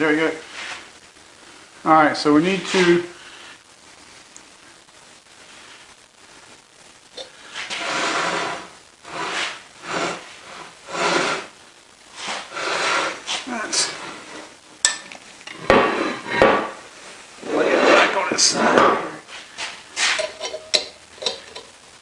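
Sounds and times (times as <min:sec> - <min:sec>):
metal parts scraping on bench: 0:12.2 - 0:14.6, 0:15.4 - 0:16.8, 0:17.4 - 0:21.7.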